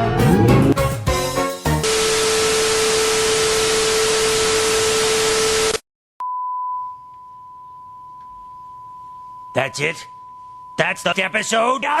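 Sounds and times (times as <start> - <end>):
static white noise: 1.9 - 5.8.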